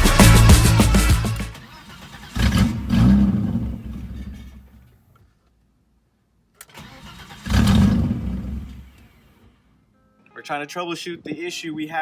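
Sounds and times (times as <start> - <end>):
car engine: 0.0 - 4.9, 6.6 - 9.6
click: 6.6 - 6.8.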